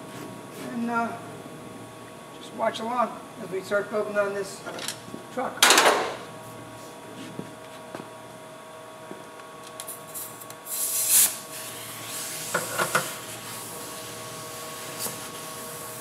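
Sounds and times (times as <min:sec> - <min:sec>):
electrical hum: 0:00.0 - 0:16.0
compressed air hiss: 0:10.1 - 0:13.9.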